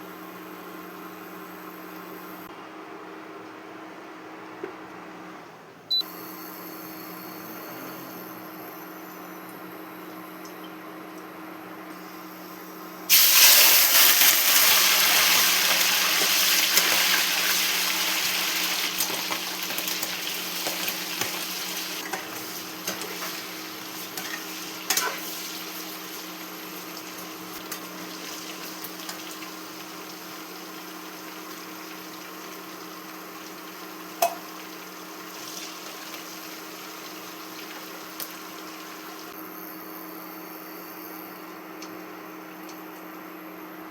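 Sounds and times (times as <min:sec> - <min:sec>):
low kitchen hum: 0:00.0 - 0:43.9
food sizzling in hot oil: 0:12.0 - 0:41.3.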